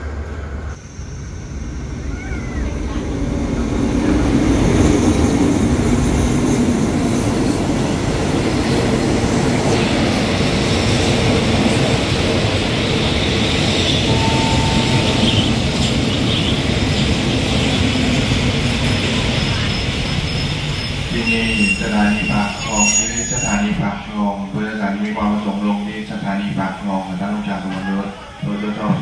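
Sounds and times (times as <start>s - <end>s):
train wheels rumbling on rails: 0.0s - 29.0s
thin brake squeal: 19.4s - 23.8s.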